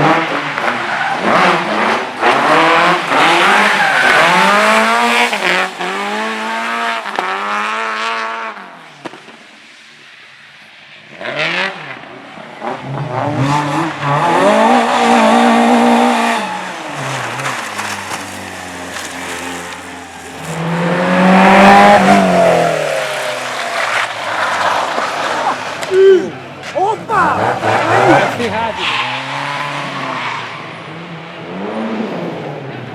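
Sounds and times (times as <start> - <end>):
race car engines revving: 0.0 - 32.9
tyre squeal: 3.1 - 6.6, 15.0 - 30.8.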